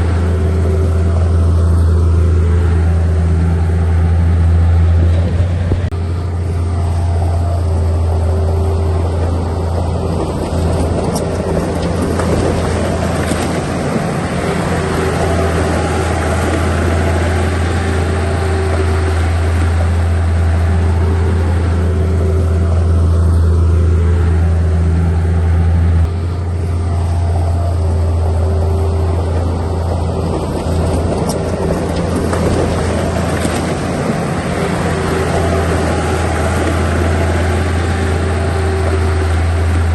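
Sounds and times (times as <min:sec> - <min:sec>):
diesel engine humming: 0:00.0 - 0:39.9.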